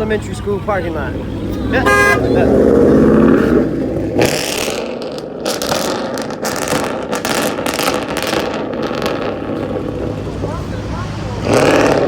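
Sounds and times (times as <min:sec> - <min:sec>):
car engine running: 0:00.0 - 0:12.0
crackling and rattling: 0:03.4 - 0:10.6.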